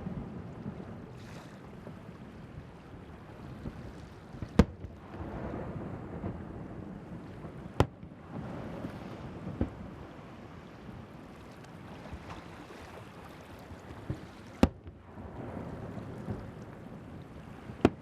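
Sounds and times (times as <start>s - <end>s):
surf: 0.0s - 18.0s
wind on microphone: 0.0s - 18.0s
faint firework pops: 4.4s - 5.3s, 7.8s - 8.1s, 14.0s - 15.0s, 17.8s - 18.0s.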